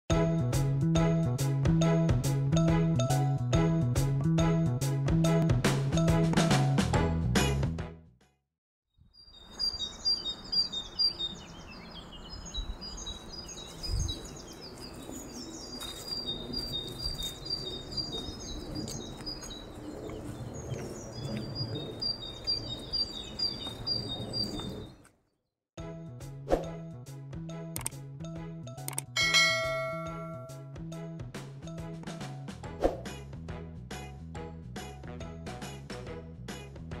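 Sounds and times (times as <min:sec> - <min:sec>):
background music: 0:00.1 - 0:08.2, 0:25.8 - 0:37.0
birds chirping and trilling: 0:09.0 - 0:25.1.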